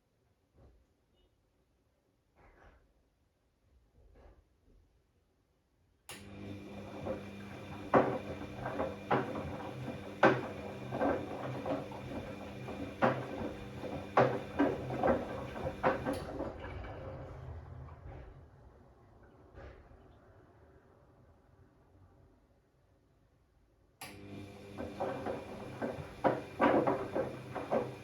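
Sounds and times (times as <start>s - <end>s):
washing machine motor hum: 6.2s - 16.7s, 24.0s - 28.0s
drum knocks and clicks: 7.0s - 16.3s, 24.9s - 28.0s.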